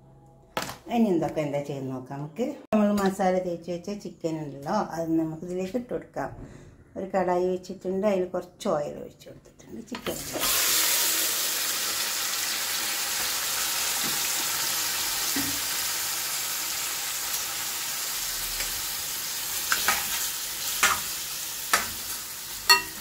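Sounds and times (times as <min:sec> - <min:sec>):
chicken sizzling in hot oil: 0:10.1 - 0:23.0.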